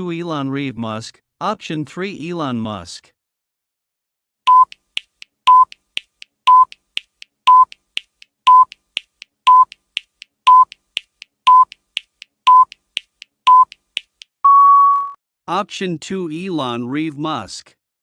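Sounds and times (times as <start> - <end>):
short electronic beep: 4.5 - 4.8, 14.4 - 15.2
faint timer ticks: 4.5 - 14.4.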